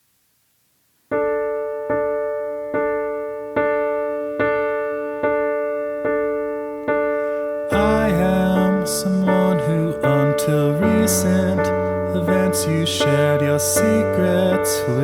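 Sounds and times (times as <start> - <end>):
piano chord struck: 1.1 - 15.0.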